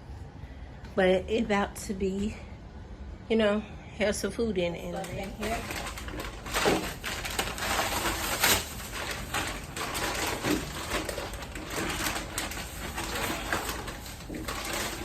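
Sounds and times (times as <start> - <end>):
packaging rustling and clunking: 5.0 - 15.0.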